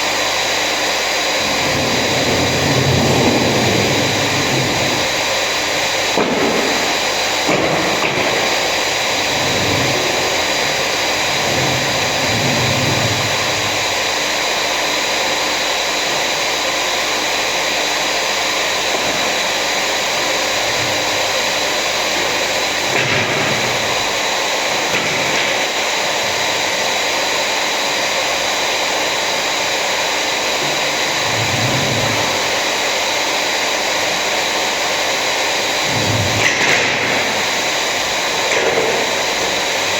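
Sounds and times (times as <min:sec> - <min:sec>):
power tool motor whine: 0:00.2 - 0:34.2.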